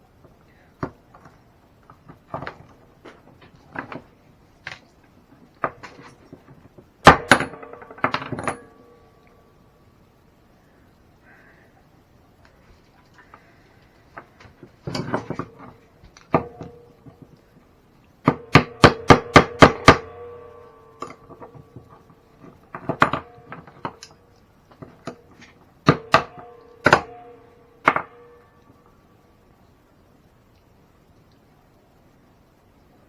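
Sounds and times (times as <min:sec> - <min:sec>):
hammer tapping on metal: 0:25.9 - 0:28.6.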